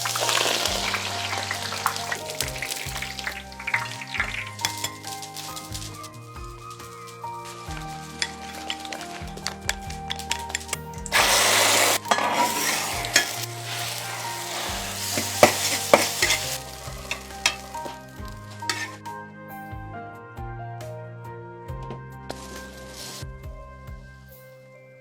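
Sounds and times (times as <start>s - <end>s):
food sizzling in hot oil: 0.0s - 19.0s
soft background music: 0.0s - 25.0s
utensil clicking against pan: 18.7s - 18.9s.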